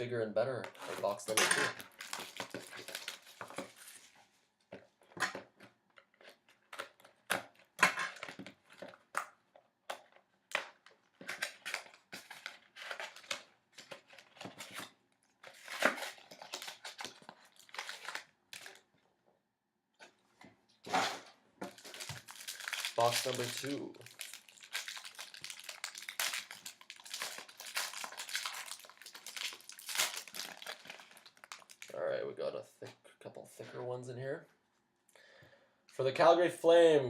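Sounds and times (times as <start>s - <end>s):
packaging crinkling and tearing: 0.8s - 4.2s, 10.0s - 18.9s, 21.7s - 32.0s.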